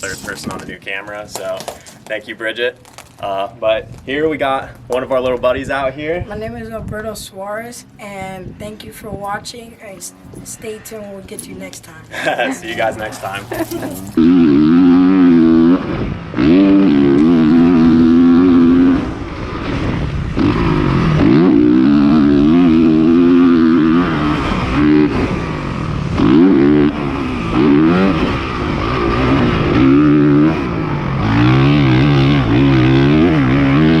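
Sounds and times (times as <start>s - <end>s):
dirt bike engine revving: 12.1s - 34.0s.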